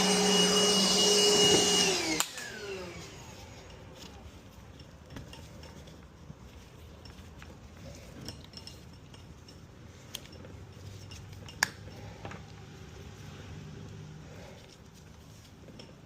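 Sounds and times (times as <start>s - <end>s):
clinks of small parts and tools: 2.9s - 12.6s, 14.6s - 16.0s.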